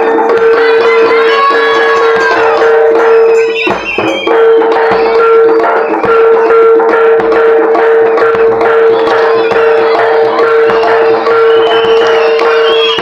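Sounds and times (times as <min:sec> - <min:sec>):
percussion drums: 0:00.0 - 0:13.0.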